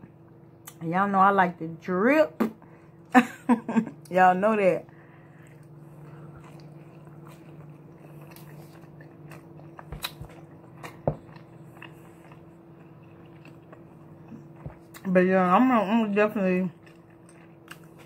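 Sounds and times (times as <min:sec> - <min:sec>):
low steady hum: 0:00.0 - 0:18.0
person chewing: 0:05.2 - 0:15.1, 0:16.7 - 0:18.0.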